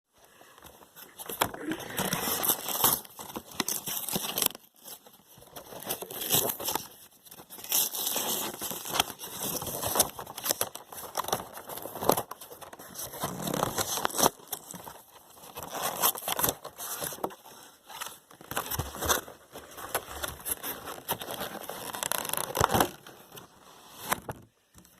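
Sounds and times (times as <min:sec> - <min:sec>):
packaging crinkling and rustling: 0:00.4 - 0:24.9
packaging tearing: 0:01.3 - 0:05.0, 0:05.6 - 0:17.3, 0:19.9 - 0:23.1.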